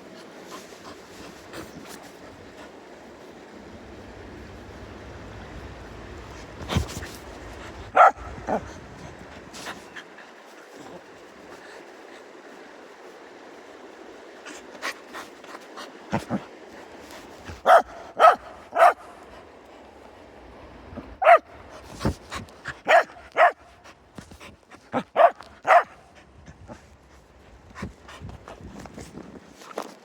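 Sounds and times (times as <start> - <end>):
dog barking: 7.9 - 8.8, 17.5 - 19.2, 21.2 - 21.6, 22.8 - 23.7, 24.9 - 26.1.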